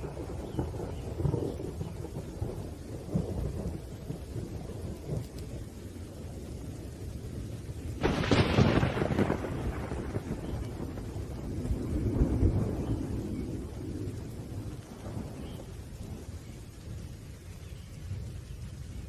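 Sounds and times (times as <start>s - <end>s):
steady rain: 0.0s - 19.0s
thunder rumbling: 0.0s - 19.0s
sharp thunderclap: 7.6s - 16.3s.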